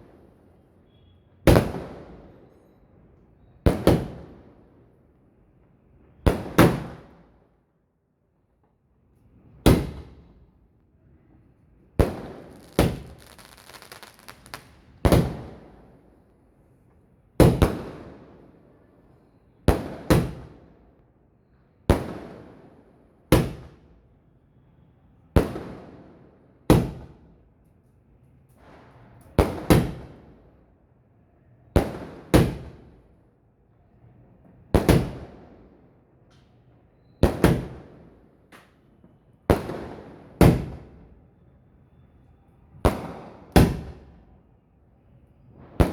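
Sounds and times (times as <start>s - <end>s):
fireworks bangs with echo: 1.5s - 2.3s, 12.0s - 15.8s, 34.7s - 35.4s, 37.2s - 38.1s, 39.5s - 41.0s, 42.8s - 44.2s, 45.5s - 45.9s.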